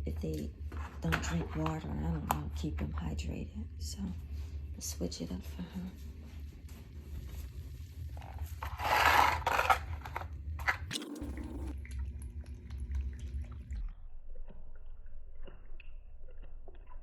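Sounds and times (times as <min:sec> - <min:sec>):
low hum: 0:10.9 - 0:11.8
wet cat food squishing: 0:14.4 - 0:17.0.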